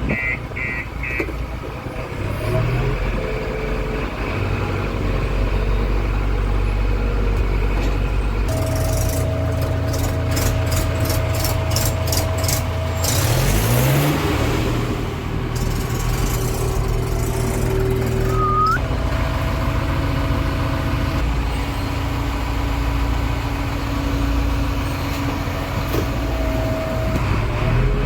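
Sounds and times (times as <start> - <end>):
diesel engine running: 0.0 - 28.0
steady tone: 8.5 - 12.2, 17.4 - 18.8.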